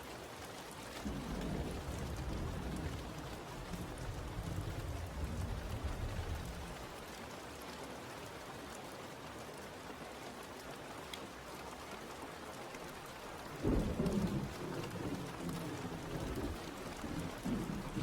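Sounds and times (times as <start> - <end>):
rain falling: 0.0 - 18.0
thunder rumble: 1.0 - 6.8, 13.5 - 18.0.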